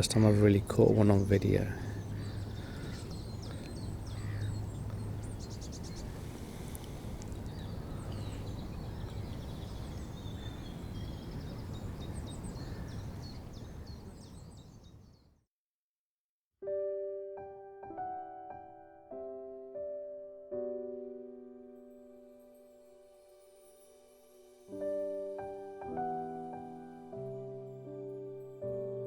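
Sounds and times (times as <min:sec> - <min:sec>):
small birds twittering: 0:00.0 - 0:15.4.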